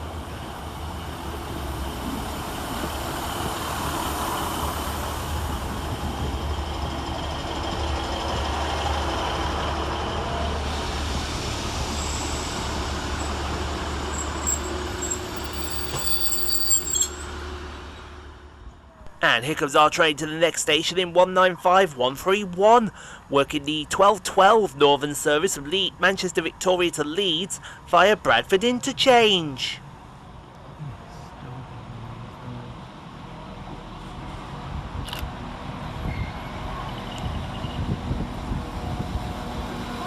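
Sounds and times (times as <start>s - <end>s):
train rumble: 0.0s - 19.2s, 31.6s - 40.0s
high-pitched squeals: 14.0s - 17.4s.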